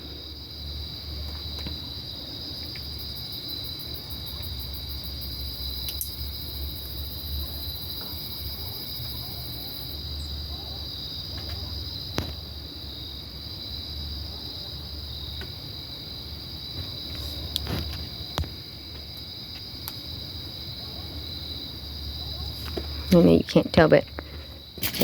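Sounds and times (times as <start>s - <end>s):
high-pitched insect chirring: 2.7s - 10.4s.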